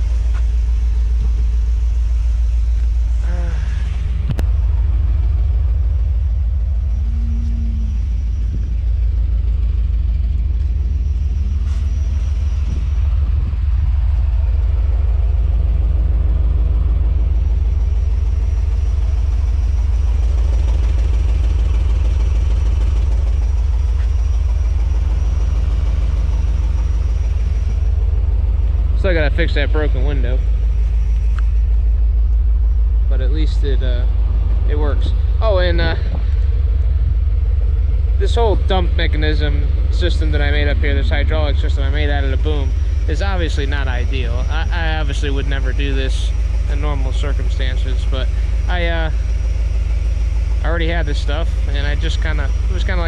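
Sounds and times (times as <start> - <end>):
truck engine idling: 0.0 - 53.0.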